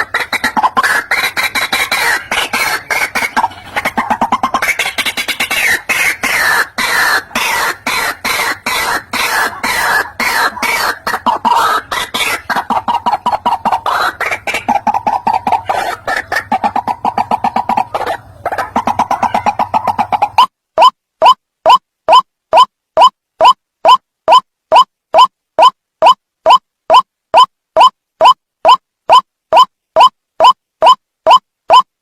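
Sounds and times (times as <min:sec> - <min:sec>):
bird croaking calls: 0:00.0 - 0:21.8.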